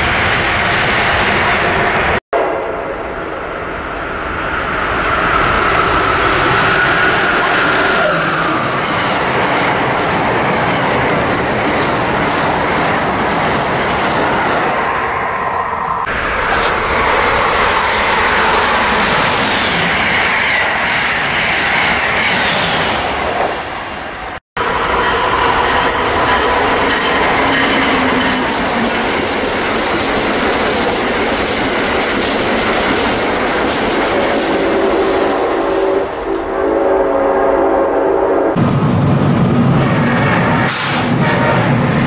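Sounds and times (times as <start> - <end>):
train passing at speed: 0.0 - 42.0
wheels clacking over rail joints: 25.0 - 36.5.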